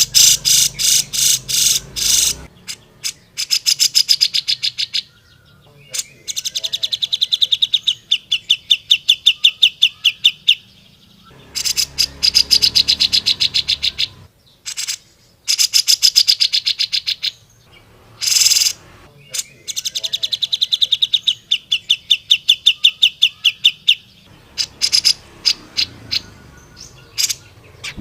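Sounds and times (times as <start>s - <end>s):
bulbul chattering trills: 0.0s - 28.0s.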